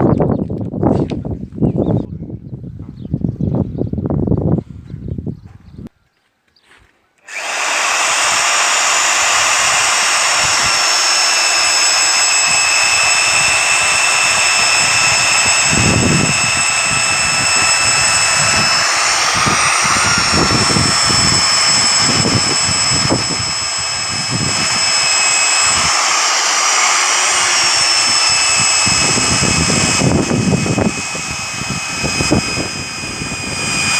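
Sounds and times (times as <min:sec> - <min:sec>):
drill motor whining: 0:07.2 - 0:33.9.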